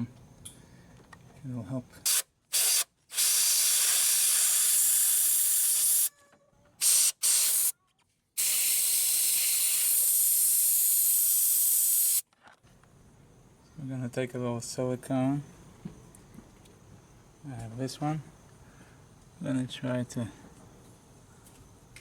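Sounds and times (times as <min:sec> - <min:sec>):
spray nozzle hissing: 0:02.1 - 0:06.1, 0:06.8 - 0:07.7, 0:08.4 - 0:12.2.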